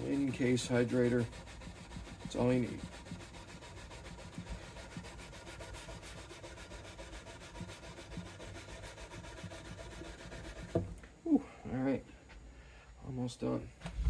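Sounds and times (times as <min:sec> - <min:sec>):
steel wool scrubbing guitar frets: 0:00.0 - 0:10.8.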